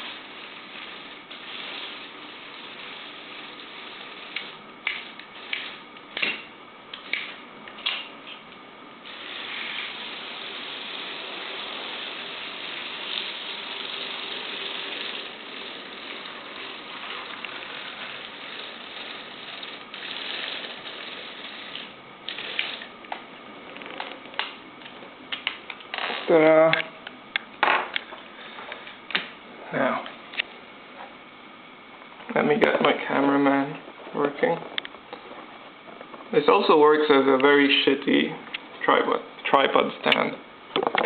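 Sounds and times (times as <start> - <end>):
robot motors whirring: 9.1 - 22.9.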